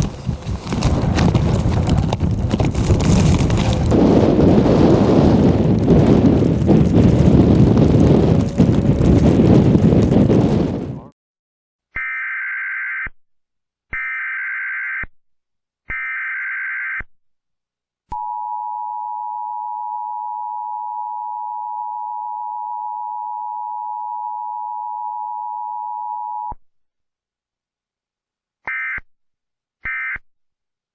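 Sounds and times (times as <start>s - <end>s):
wind noise on microphone: 0.0s - 11.1s
two-tone attention signal: 18.2s - 26.5s.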